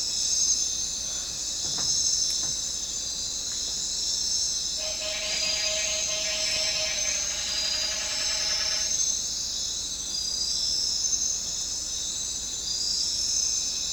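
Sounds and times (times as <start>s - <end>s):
insects shrilling: 4.4s - 9.3s
low buzzing tone: 4.7s - 9.4s.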